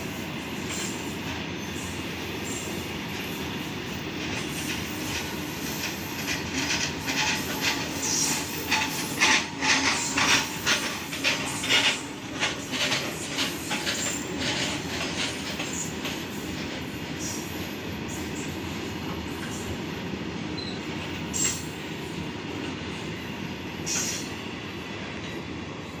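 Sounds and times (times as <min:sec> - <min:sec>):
train wagons rumbling: 0:00.0 - 0:26.0
train wheels clicking over rail joints: 0:04.0 - 0:19.8, 0:20.5 - 0:22.9, 0:23.8 - 0:24.3
high wheel squeaks: 0:04.5 - 0:16.2.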